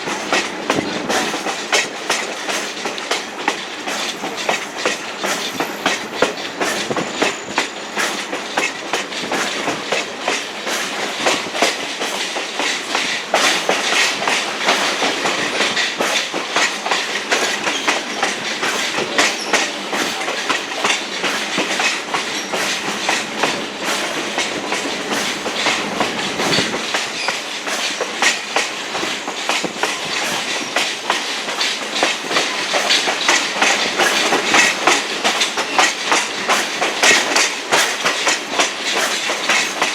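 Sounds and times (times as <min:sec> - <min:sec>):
rail car body rattling: 0:00.0 - 0:39.9
train wheels clicking over rail joints: 0:00.0 - 0:39.9.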